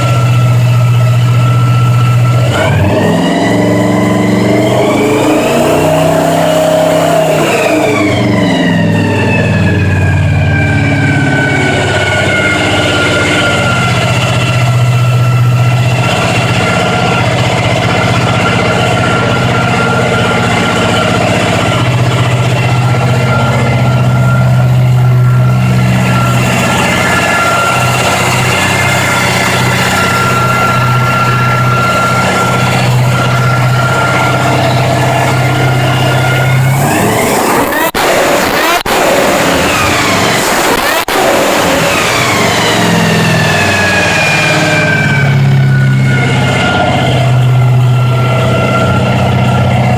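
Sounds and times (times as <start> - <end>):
supercharged engine idling: 0.0 - 49.9.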